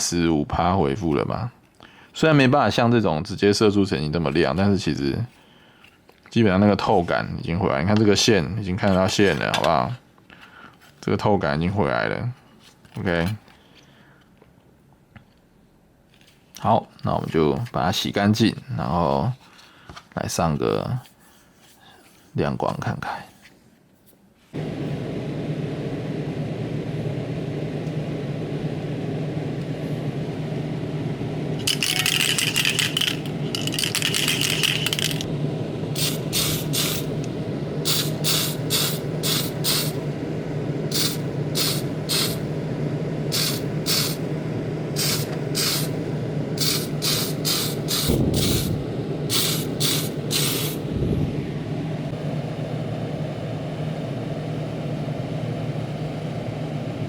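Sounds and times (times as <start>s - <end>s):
steady motor hum: 24.6s - 57.0s
spray paint hissing: 31.6s - 35.3s, 36.0s - 37.1s, 37.8s - 40.0s, 40.9s - 42.5s, 43.3s - 44.2s, 45.0s - 46.0s, 46.6s - 50.8s.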